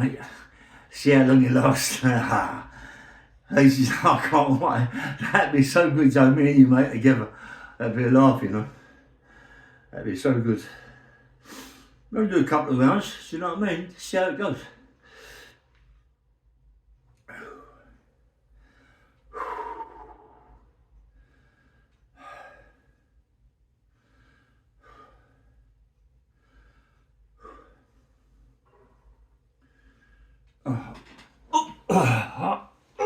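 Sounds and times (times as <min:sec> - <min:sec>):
man breathing heavily: 0:00.3 - 0:00.9, 0:02.6 - 0:03.5, 0:07.3 - 0:07.8, 0:08.7 - 0:09.9, 0:17.2 - 0:33.0
man's exertion sounds: 0:30.7 - 0:33.0.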